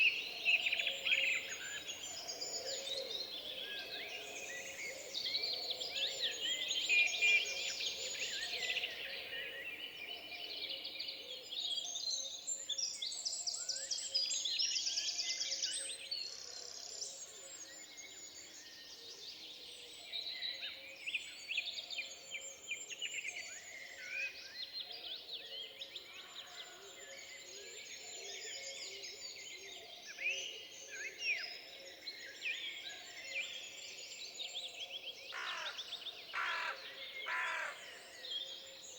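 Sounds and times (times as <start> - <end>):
birds chirping and trilling: 35.3 - 38.6.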